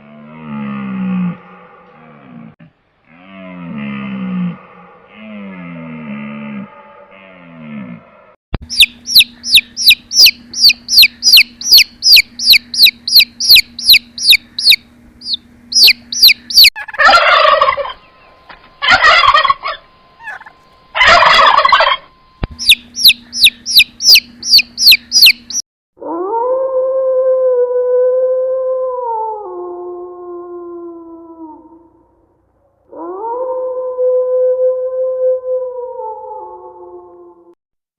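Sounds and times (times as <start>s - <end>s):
bird chirping: 8.6s - 16.8s, 17.7s - 25.6s
harsh rough bird calls: 8.6s - 25.6s.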